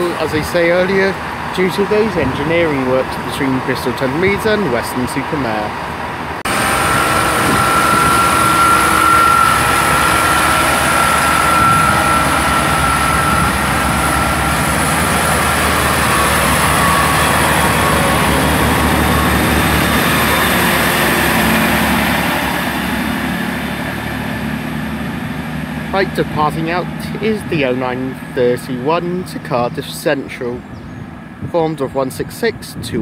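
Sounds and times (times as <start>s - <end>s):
train diesel engines running: 0.0s - 33.0s
high-pitched whine: 6.5s - 30.6s.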